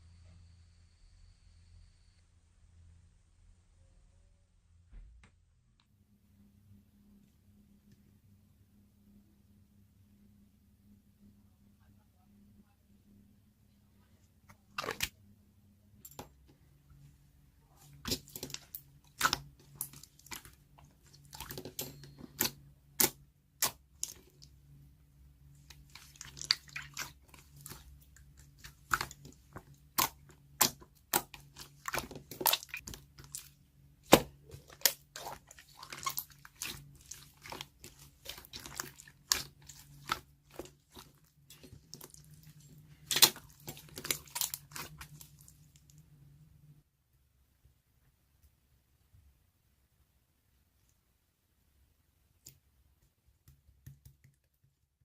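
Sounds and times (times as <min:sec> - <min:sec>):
faint low hum: 0:00.0 - 0:55.0.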